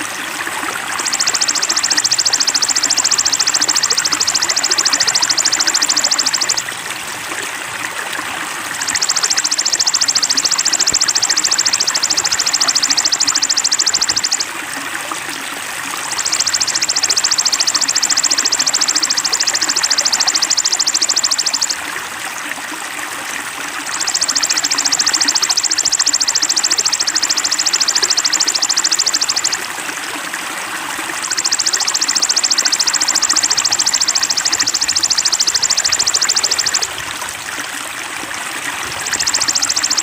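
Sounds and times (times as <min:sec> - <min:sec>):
flowing water: 0:00.0 - 0:40.0
rapid trilling call: 0:00.9 - 0:06.7, 0:08.8 - 0:14.5, 0:16.0 - 0:21.8, 0:23.9 - 0:29.7, 0:31.2 - 0:36.9, 0:38.8 - 0:40.0.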